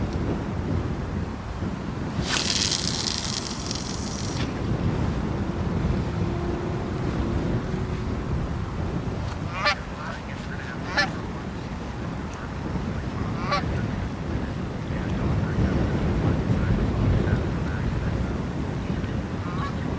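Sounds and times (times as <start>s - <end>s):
wind rumble on microphone: 0.0s - 19.9s.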